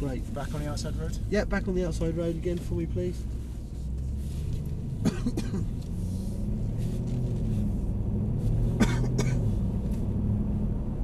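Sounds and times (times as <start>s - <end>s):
car engine rumbling: 0.0s - 11.0s
sharp cough-like sound: 5.0s - 5.8s, 8.8s - 9.4s.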